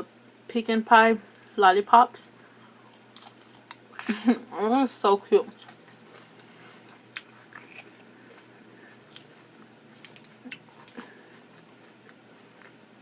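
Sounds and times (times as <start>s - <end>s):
low steady hum: 0.0s - 13.0s
person chewing: 2.5s - 4.1s, 5.5s - 13.0s.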